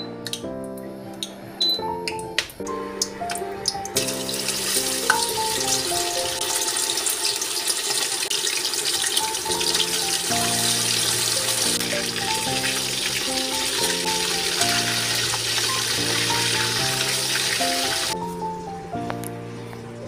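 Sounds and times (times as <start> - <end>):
background music: 0.0 - 7.8, 8.9 - 20.0
food sizzling in hot oil: 4.0 - 18.2.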